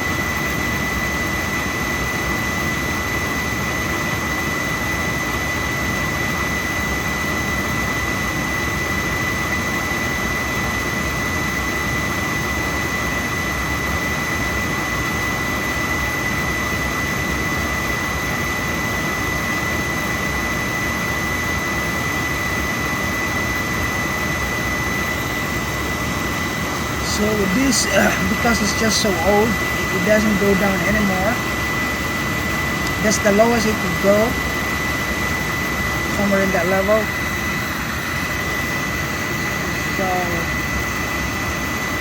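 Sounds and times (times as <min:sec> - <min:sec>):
boiler burner rushing: 0:21.8 - 0:39.6
thin high whine: 0:25.0 - 0:37.2.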